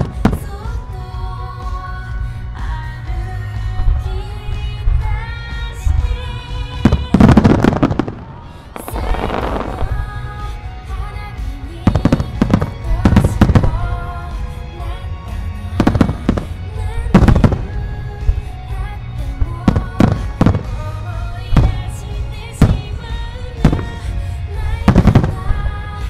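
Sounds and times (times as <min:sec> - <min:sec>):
fireworks booming and crackling: 0:00.0 - 0:00.8, 0:06.8 - 0:10.6, 0:11.8 - 0:14.0, 0:15.8 - 0:18.5, 0:19.4 - 0:25.8
music playing: 0:00.0 - 0:26.0.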